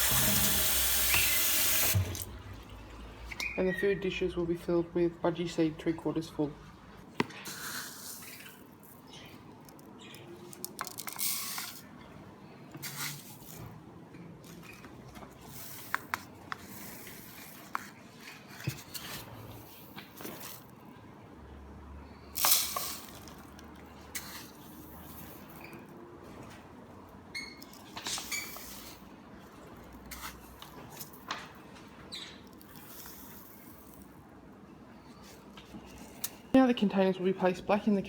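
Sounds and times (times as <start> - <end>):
seeds poured into dishes: 22.4 - 23.6, 32.6 - 34.1.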